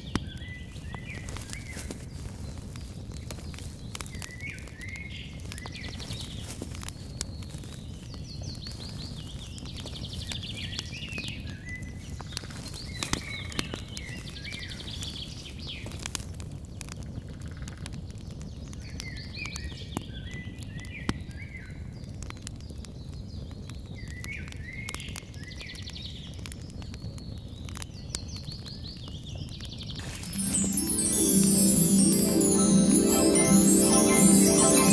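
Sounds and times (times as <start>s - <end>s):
campfire crackling and popping: 0.0s - 10.3s
music: 30.1s - 34.9s.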